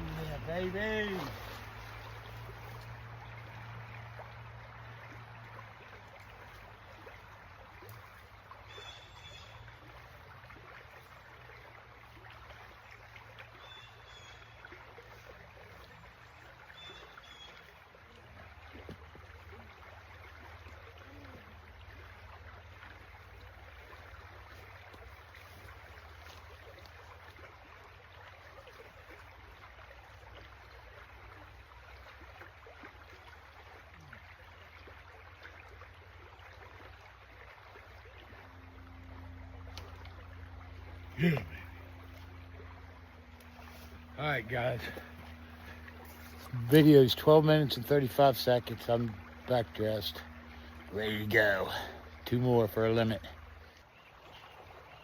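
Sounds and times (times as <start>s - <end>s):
stream rushing over rapids: 0.0s - 4.8s.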